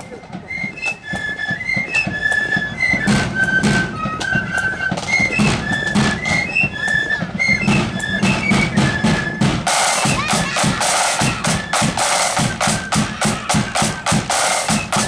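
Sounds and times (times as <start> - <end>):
flutes playing melody: 0.0 - 15.0
snare drums: 0.0 - 15.0
bass drum beat: 7.7 - 15.0.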